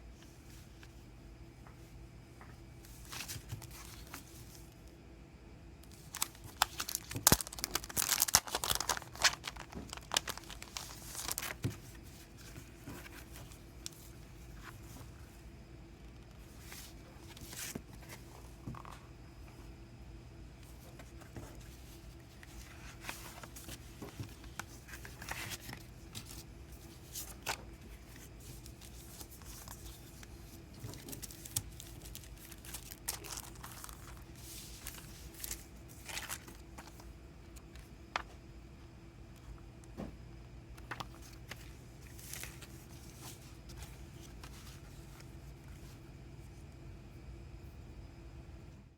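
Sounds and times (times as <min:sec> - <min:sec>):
steady low hum: 0:00.0 - 0:48.9
paper and plastic crinkling: 0:02.9 - 0:04.7, 0:05.8 - 0:15.2, 0:20.7 - 0:38.4, 0:40.7 - 0:46.0.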